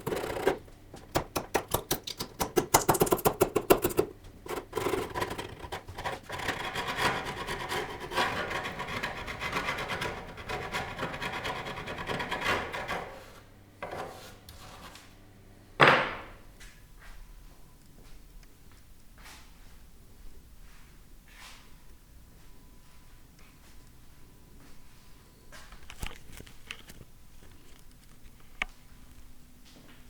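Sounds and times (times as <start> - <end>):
sanding wood by hand: 3.2 - 13.4.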